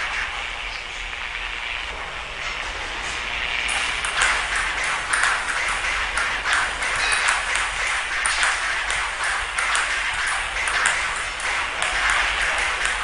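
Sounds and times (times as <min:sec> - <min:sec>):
steady hiss: 0:00.0 - 0:13.0
table tennis ball clicks: 0:03.7 - 0:13.0.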